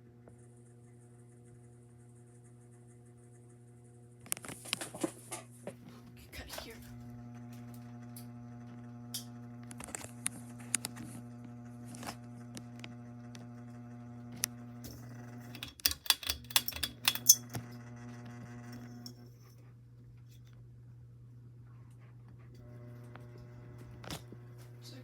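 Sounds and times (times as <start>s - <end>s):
ceiling fan motor humming: 0.4s - 25.0s
sharp clicks and rattling: 15.5s - 17.6s.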